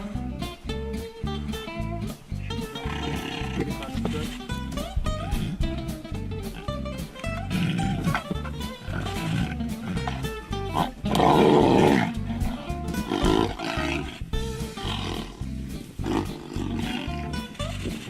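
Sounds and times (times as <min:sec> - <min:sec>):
background music with steady beat: 0:00.0 - 0:18.0
large animal roaring: 0:02.8 - 0:03.9, 0:07.4 - 0:15.4, 0:16.0 - 0:17.5.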